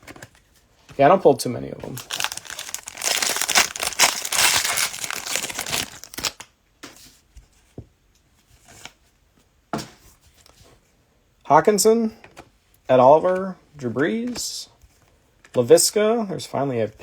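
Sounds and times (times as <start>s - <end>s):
cards tapping and rustling: 1.8s - 7.0s
cellophane wrappers tearing and crinkling: 1.9s - 6.5s.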